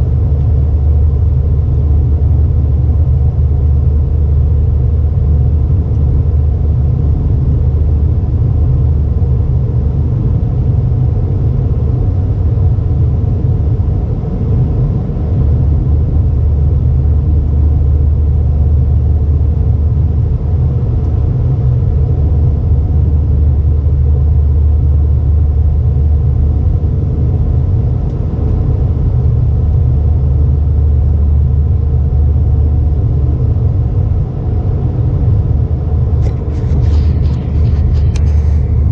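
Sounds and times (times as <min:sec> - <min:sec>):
airplane cabin rumble: 0:00.0 - 0:38.9.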